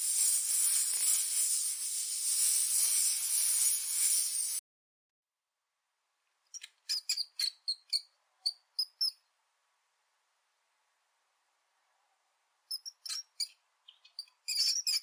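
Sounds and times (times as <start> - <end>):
small animal squeaking: 6.5 - 9.2, 12.7 - 15.0.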